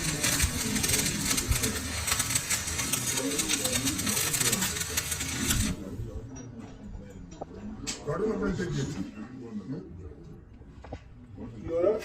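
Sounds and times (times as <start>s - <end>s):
lathe running with rapid rattle: 0.0s - 6.0s.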